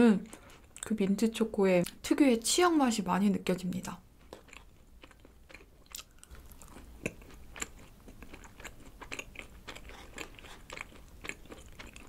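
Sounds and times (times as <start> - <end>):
person chewing cake: 4.2 - 12.0.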